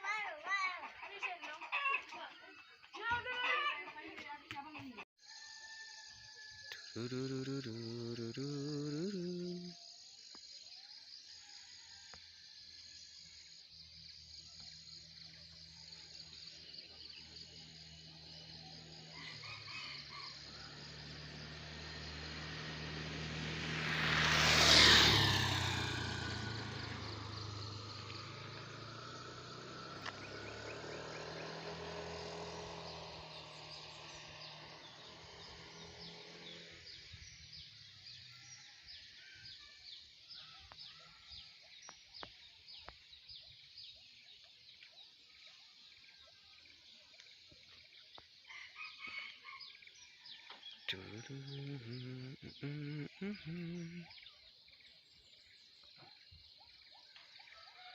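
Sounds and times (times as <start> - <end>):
crickets chirping: 5.3 - 39.2, 50.9 - 56.5
truck engine passing by: 15.7 - 37.7.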